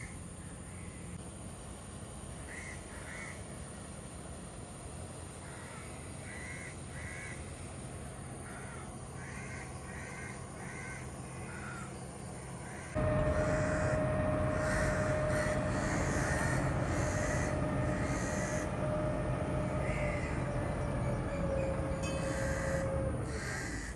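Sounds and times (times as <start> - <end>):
steady low hum: 6.8 - 23.9
bird calling: 8.5 - 23.9.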